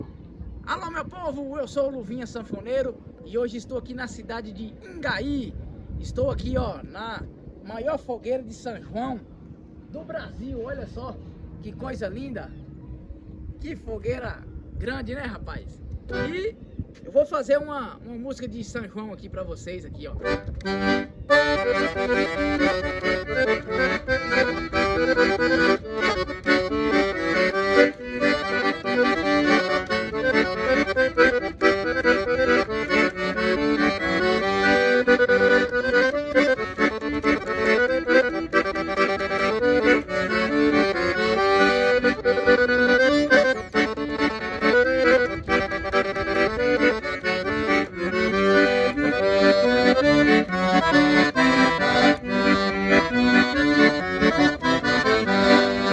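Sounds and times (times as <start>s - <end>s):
solo accordion folk tune: 16.1s - 16.4s, 20.2s - 55.9s.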